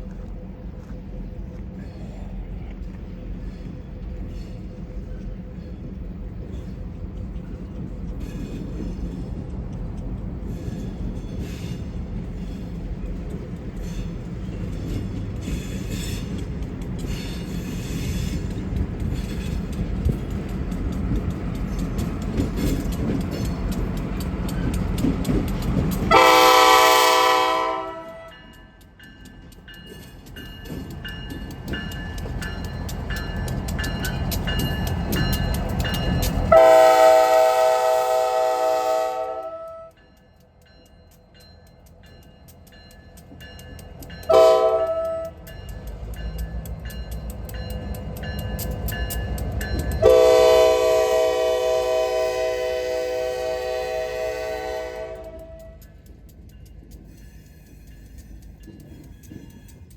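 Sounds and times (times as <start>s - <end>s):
diesel locomotive rumble: 0.0s - 59.9s
train wheel clicks: 2.6s - 59.9s
train air horn: 26.1s - 28.4s, 36.5s - 40.0s, 44.3s - 45.4s, 50.0s - 55.9s.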